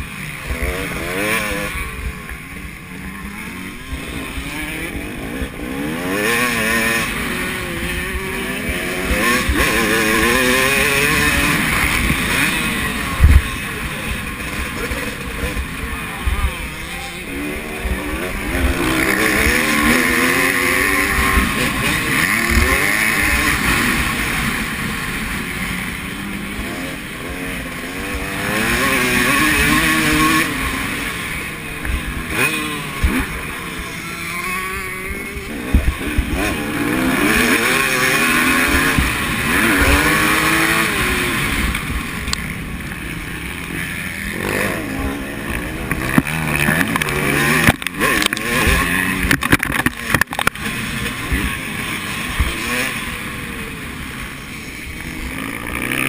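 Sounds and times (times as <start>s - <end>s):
motocross bike engines revving: 0.0s - 56.0s.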